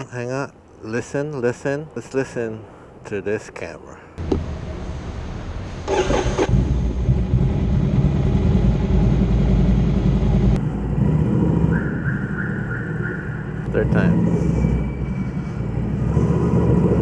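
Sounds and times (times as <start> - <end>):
motorcycle engine rumbling: 4.2 - 17.0.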